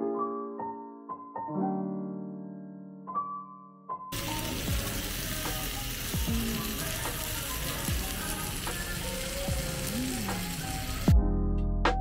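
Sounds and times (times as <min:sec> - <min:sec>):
background music: 0:00.0 - 0:12.0
food sizzling in a hot pan: 0:04.1 - 0:11.1.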